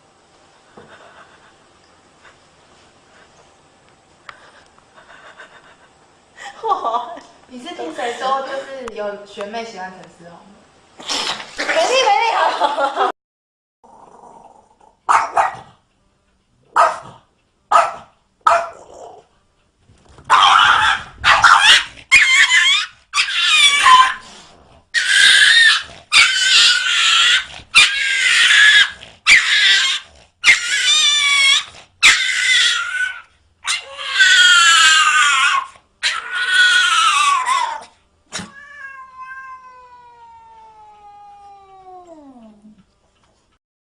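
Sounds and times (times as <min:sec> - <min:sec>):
cat yowling: 0:20.3 - 0:24.2, 0:25.0 - 0:42.6.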